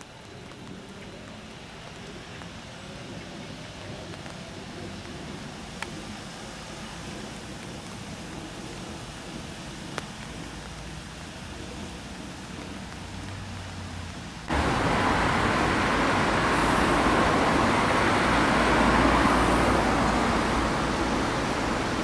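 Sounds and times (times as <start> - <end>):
cars driving past: 13.2 - 22.0
trolleybus approaching: 14.5 - 22.0.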